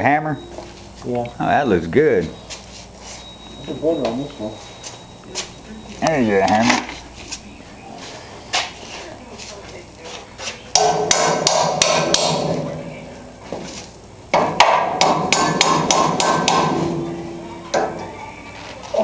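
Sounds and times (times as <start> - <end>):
hammer striking metal: 10.8 - 12.8, 14.3 - 18.0.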